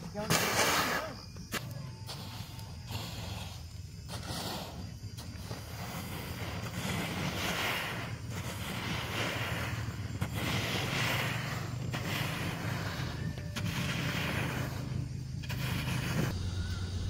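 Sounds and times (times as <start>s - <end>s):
rake swishing through grain: 0.2s - 16.7s.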